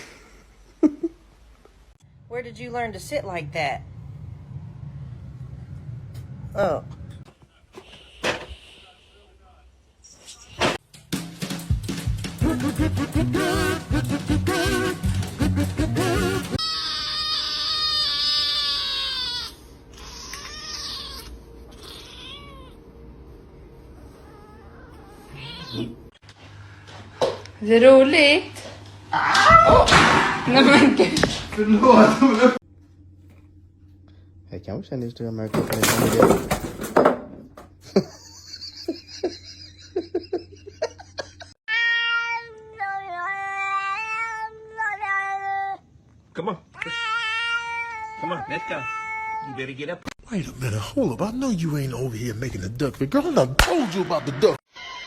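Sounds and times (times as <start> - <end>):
cat meowing: 16.6 - 22.8, 24.2 - 26.1, 46.8 - 49.6.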